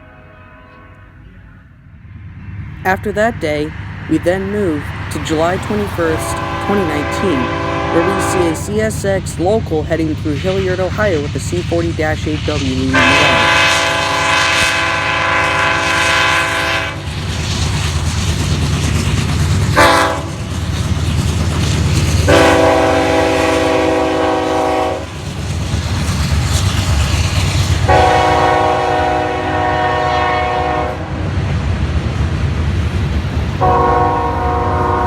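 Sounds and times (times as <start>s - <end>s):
locomotive air horn blasts: 0.0s - 1.2s, 6.1s - 8.7s, 12.9s - 17.0s, 19.8s - 20.3s, 22.3s - 25.1s, 27.9s - 31.1s, 33.6s - 35.0s
rumble of passing train: 0.0s - 35.0s.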